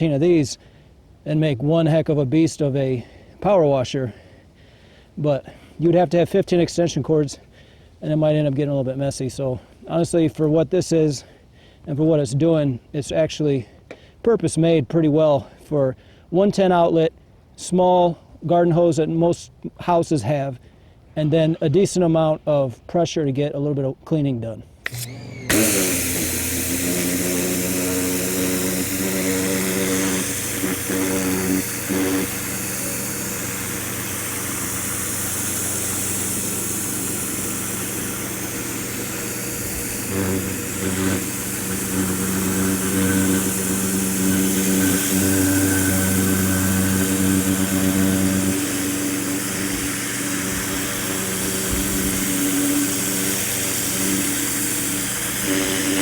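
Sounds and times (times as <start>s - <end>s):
pressure washer buzzing hum: 24.8s - 56.0s
water spray hiss: 25.5s - 56.0s.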